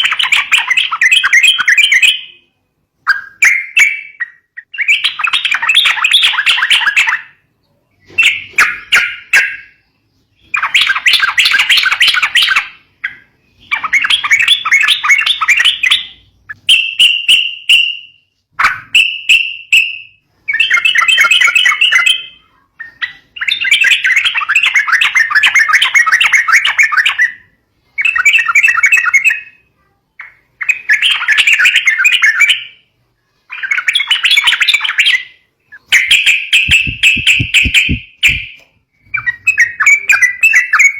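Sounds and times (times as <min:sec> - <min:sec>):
bird chattering calls: 0:33.6 - 0:40.9.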